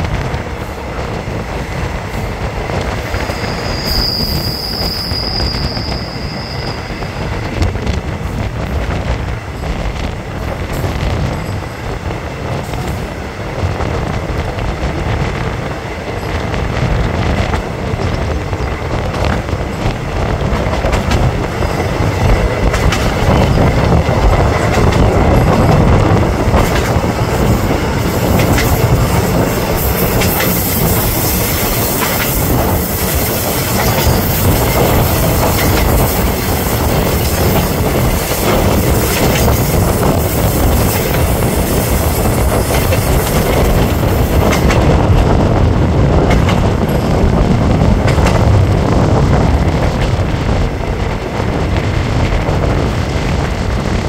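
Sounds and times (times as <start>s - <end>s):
wheel squeal: 3.1s - 7.3s
train wheels clattering over rail joints: 7.2s - 54.0s.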